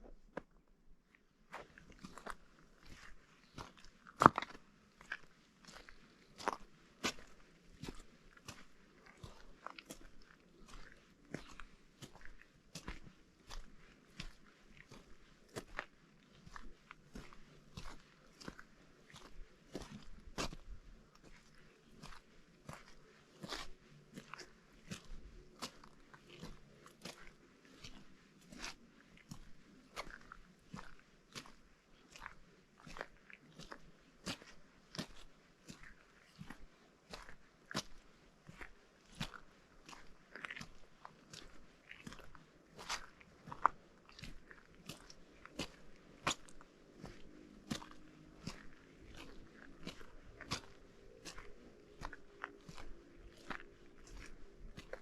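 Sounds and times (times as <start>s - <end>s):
footsteps crunching on snow: 35.7s - 55.0s.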